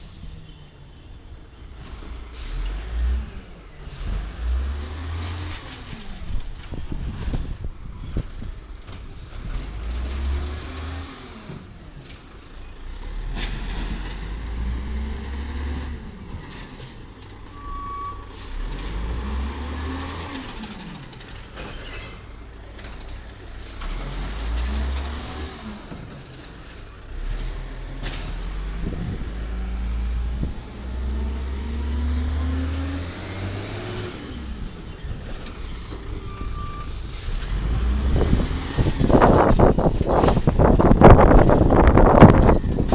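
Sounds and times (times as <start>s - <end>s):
air brake hisses: 0.0s - 2.9s, 17.2s - 18.8s, 34.8s - 37.6s
diesel truck engine revving: 2.3s - 42.9s.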